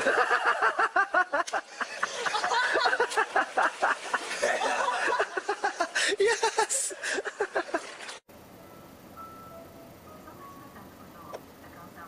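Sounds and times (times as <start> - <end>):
person laughing hard: 0.0 - 7.8.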